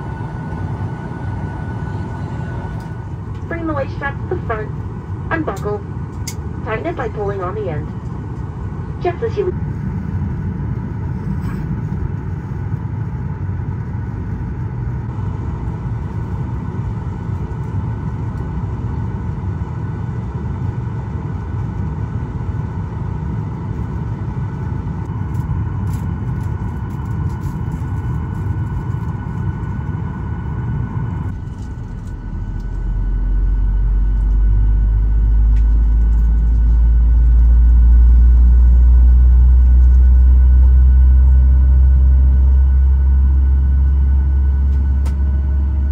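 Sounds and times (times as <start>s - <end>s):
jet engines spooling up: 0.0s - 19.0s
airplane cabin hum: 0.0s - 45.9s.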